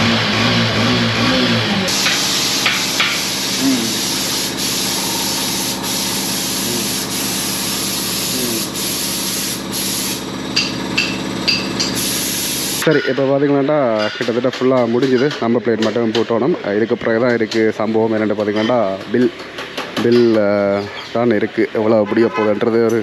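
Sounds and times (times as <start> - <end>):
steady rushing hiss: 1.9 - 10.3.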